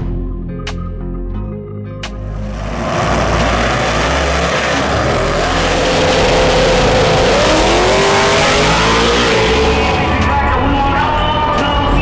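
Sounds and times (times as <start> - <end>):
vehicle engine revving: 2.0 - 12.0.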